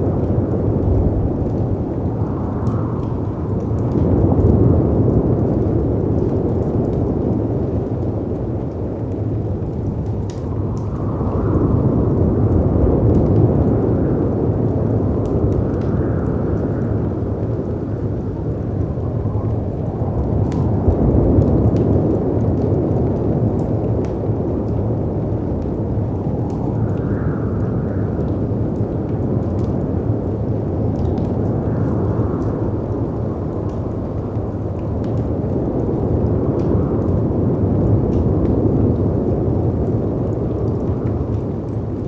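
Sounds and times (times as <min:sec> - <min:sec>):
wind rushing: 0:00.0 - 0:05.4, 0:09.8 - 0:23.4
dense wind: 0:00.0 - 0:42.0
wood fire crackles: 0:00.0 - 0:42.0.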